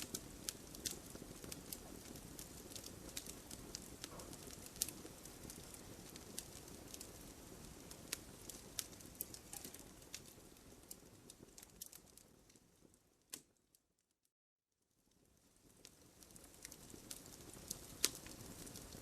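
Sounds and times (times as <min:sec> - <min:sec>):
flames rushing: 0:00.0 - 0:12.9, 0:15.3 - 0:19.0
wood fire crackling: 0:00.0 - 0:14.1, 0:14.8 - 0:19.0.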